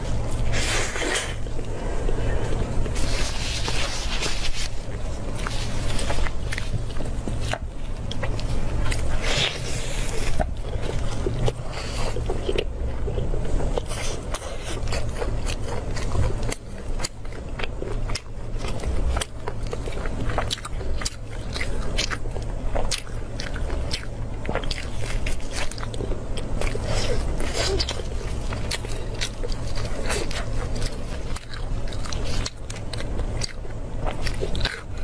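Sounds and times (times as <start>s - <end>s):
chewing meat with wet clicks: 10.4s - 35.0s.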